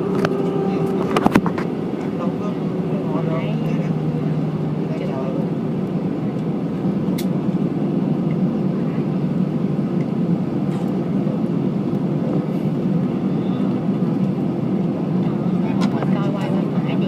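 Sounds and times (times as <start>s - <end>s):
airplane engines and rolling: 0.0s - 17.0s.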